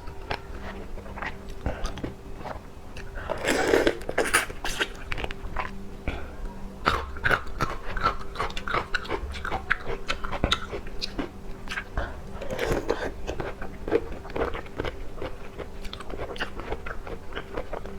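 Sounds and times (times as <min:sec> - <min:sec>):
wet chewing and biting: 0:06.9 - 0:17.9.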